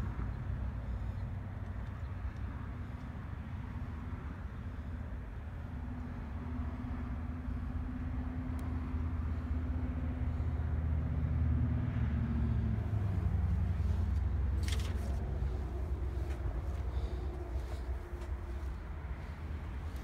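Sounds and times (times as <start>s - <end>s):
low vehicle engine hum: 0.0s - 20.0s.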